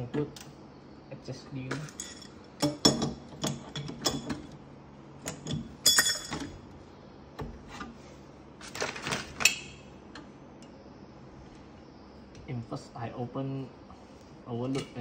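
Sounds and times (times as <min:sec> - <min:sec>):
metal tools clinking on fittings: 0:01.7 - 0:04.4, 0:05.3 - 0:06.6.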